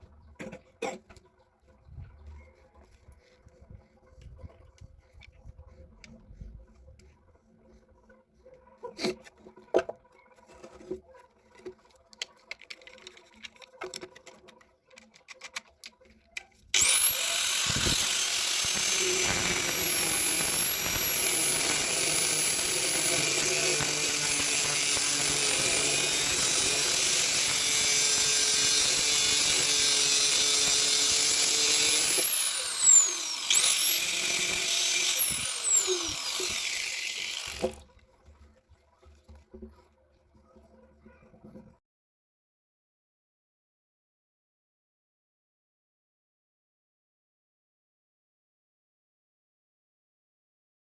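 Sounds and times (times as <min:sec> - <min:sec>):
drill press motor whining: 0:16.8 - 0:37.8.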